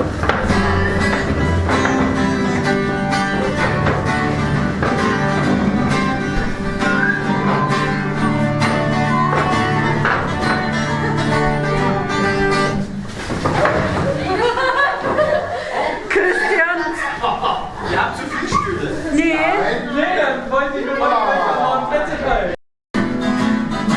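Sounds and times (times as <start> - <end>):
plucked string instrument tune: 0.0 - 14.4, 23.0 - 23.9
people talking and laughing: 0.0 - 22.6.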